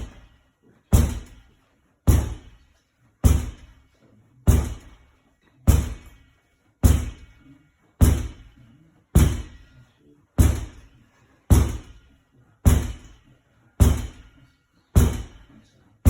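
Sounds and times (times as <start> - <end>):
ball hitting wall: 0.9 - 2.6, 3.2 - 3.8, 4.5 - 5.0, 5.7 - 6.2, 6.8 - 7.4, 8.0 - 8.6, 9.2 - 9.7, 10.4 - 12.1, 12.7 - 13.2, 13.8 - 14.3, 15.0 - 15.5.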